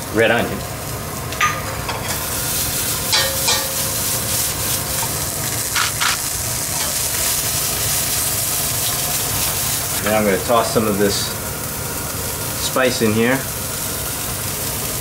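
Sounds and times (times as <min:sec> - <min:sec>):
onions sizzling in a pan: 0:00.0 - 0:15.0
spoon knocking and scraping pan: 0:03.1 - 0:03.9.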